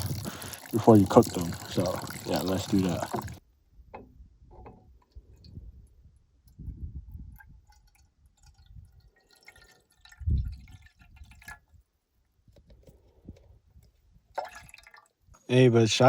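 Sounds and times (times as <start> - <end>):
water dripping and splashing: 0.0 - 3.4, 7.3 - 11.8, 14.3 - 15.3.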